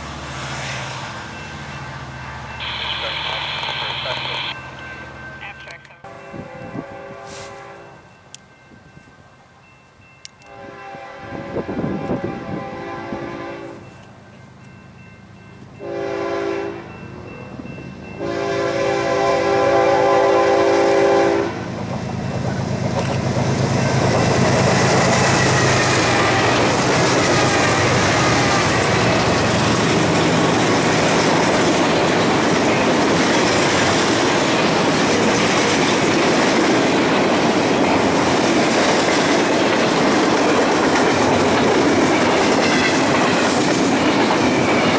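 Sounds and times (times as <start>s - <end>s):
train passing: 0.0s - 44.9s
locomotive horn blasts: 5.5s - 8.0s, 10.4s - 13.8s, 15.8s - 16.9s, 18.2s - 21.7s
wheels clacking on rails: 19.8s - 44.9s.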